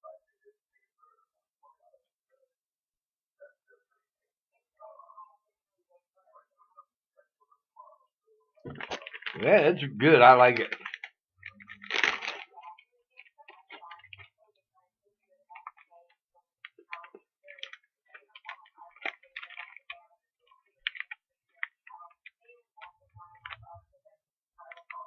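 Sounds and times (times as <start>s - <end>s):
popping candy crackling: 8.7s - 14.5s, 15.4s - 23.9s, 24.6s - 25.0s
cookie being chewed: 8.7s - 25.0s.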